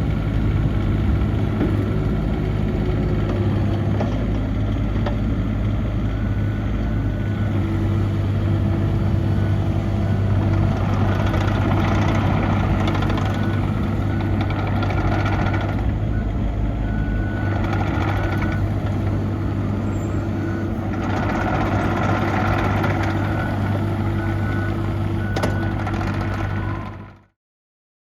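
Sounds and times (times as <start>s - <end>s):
diesel engine humming: 0.0s - 27.2s.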